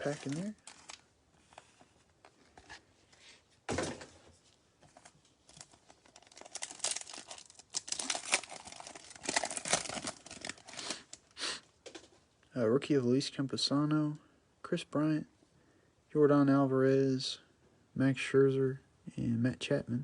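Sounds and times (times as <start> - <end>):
wrappers crinkling and tearing: 0.0 - 1.1, 5.0 - 11.3.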